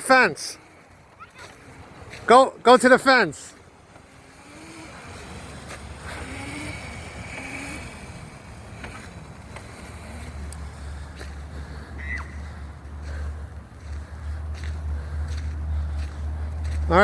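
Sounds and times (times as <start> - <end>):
electric motor whine: 3.9 - 11.0.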